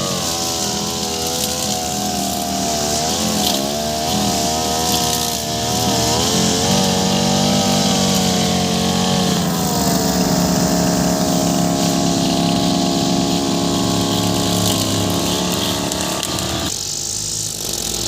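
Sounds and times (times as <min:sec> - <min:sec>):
brush cutter engine cutting grass: 0:00.0 - 0:18.0.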